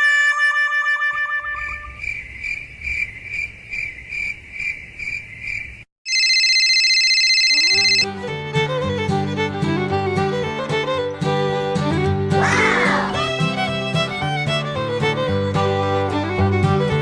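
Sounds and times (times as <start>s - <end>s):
cricket chirping: 1.6s - 5.8s
music: 7.8s - 17.0s.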